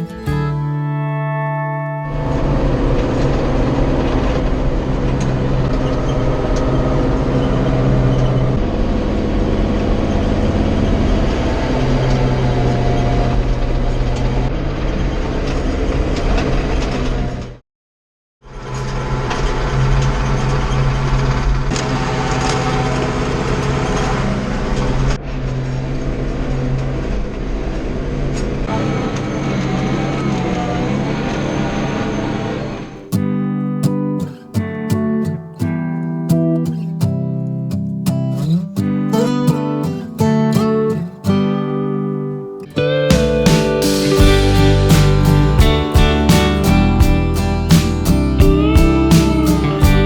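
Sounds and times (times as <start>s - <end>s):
tractor diesel engine running: 2.1s - 8.1s, 44.2s - 50.0s.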